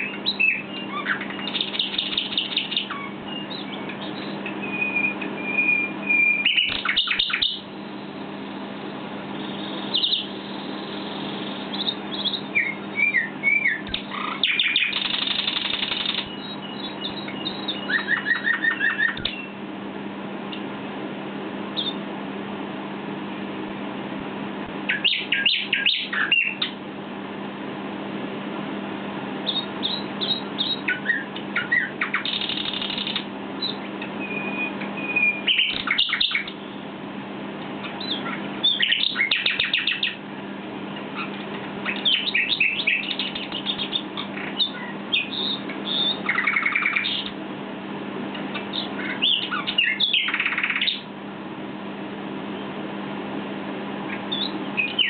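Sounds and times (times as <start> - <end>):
nightingale singing: 0.0 - 8.1, 8.8 - 19.6, 21.7 - 22.0, 24.9 - 26.8, 29.4 - 36.9, 37.8 - 40.2, 41.1 - 47.4, 48.5 - 51.1, 54.1 - 55.0.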